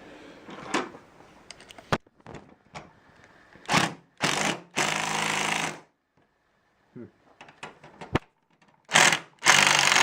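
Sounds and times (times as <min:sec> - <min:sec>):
power driver running a fastener: 0:03.6 - 0:05.9, 0:08.9 - 0:10.0.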